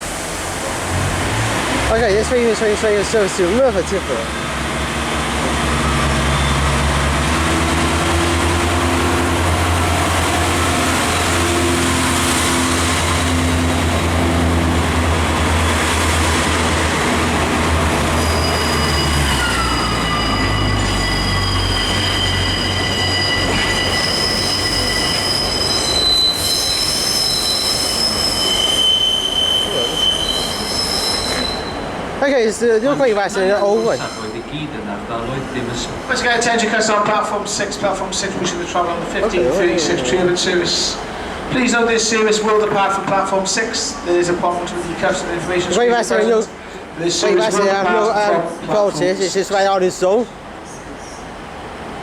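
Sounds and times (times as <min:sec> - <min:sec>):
diesel train engine droning: 0:00.0 - 0:52.0
train wheels squealing: 0:05.4 - 0:07.2, 0:18.0 - 0:31.9, 0:33.3 - 0:34.6.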